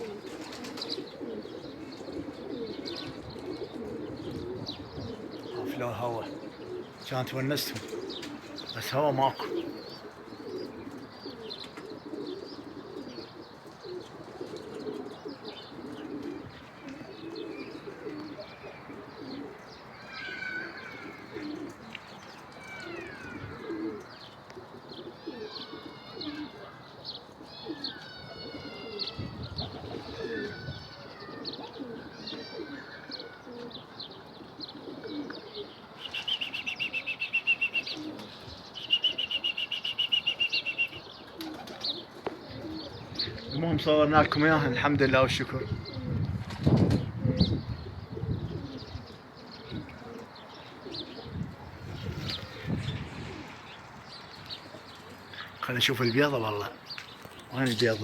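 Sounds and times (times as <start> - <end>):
pigeons cooing: 0.0 - 58.0
small birds chirping: 0.0 - 58.0
bird high trill: 36.0 - 42.0.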